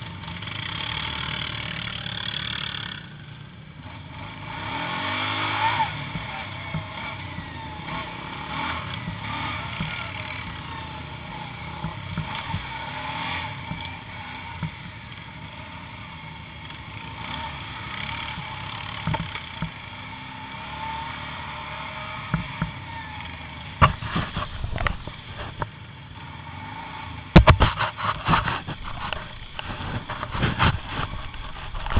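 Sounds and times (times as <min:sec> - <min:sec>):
atv engine running: 0:00.0 - 0:31.9
loud sharp knocks and thumps: 0:19.0 - 0:19.7, 0:23.8 - 0:25.7, 0:27.3 - 0:31.9.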